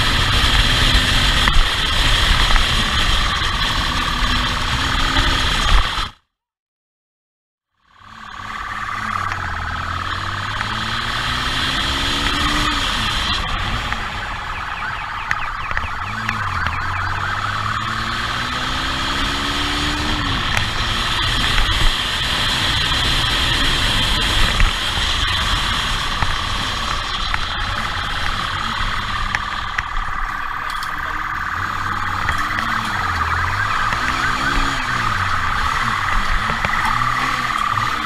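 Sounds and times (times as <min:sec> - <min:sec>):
car engine accelerating: 0:00.0 - 0:06.2, 0:07.8 - 0:38.0
road noise: 0:00.0 - 0:06.2, 0:07.7 - 0:38.0
police siren: 0:08.0 - 0:38.0.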